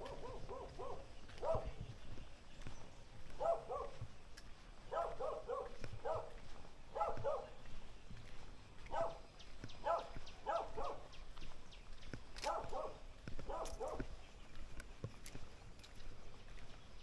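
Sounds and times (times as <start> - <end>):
dog barking: 0.0 - 1.8, 3.2 - 4.1, 4.9 - 7.6, 8.8 - 11.2, 12.4 - 14.1.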